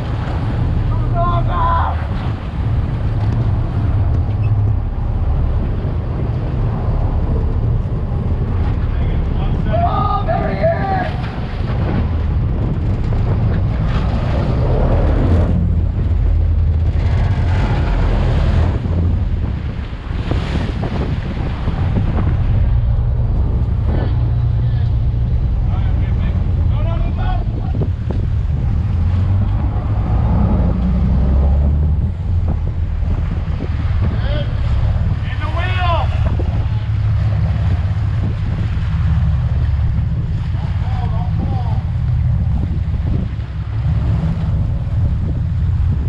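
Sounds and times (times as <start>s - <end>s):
water rushing around a boat: 0.0s - 46.0s
wind buffeting the microphone: 0.0s - 46.0s.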